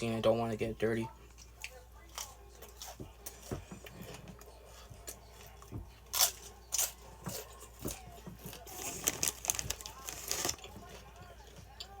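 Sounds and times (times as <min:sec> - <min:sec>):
person chewing: 0:01.2 - 0:12.0
crunching: 0:05.4 - 0:11.1.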